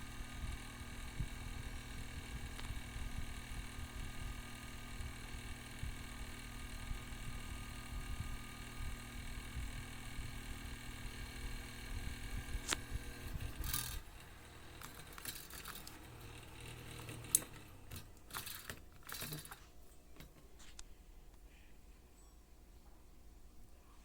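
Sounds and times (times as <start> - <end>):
mini fan motor humming: 0.0 - 21.5
plastic clicks and rattles: 14.7 - 20.5.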